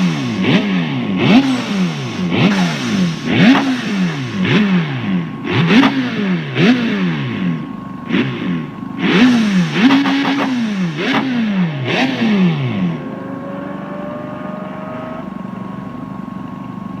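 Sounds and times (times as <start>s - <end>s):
rotary engine revving and idling: 0.0s - 17.0s.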